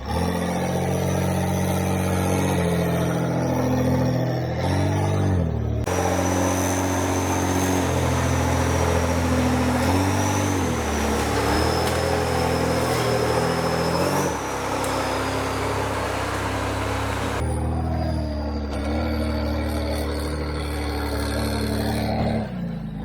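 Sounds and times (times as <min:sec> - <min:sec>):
high drivetrain whine: 0:00.0 - 0:23.0
off-road vehicle engine under load: 0:00.0 - 0:23.0.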